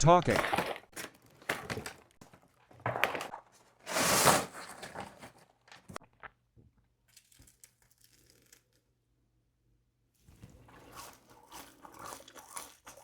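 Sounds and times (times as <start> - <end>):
paper packaging crinkling: 0.3 - 6.0.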